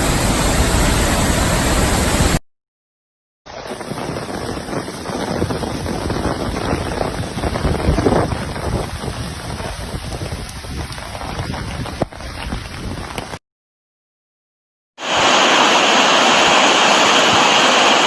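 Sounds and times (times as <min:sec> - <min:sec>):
heavy rain: 0:00.0 - 0:02.4, 0:03.5 - 0:13.4, 0:15.0 - 0:18.0
wind: 0:00.0 - 0:02.4, 0:03.5 - 0:13.4
wind buffeting microphone: 0:03.6 - 0:13.4.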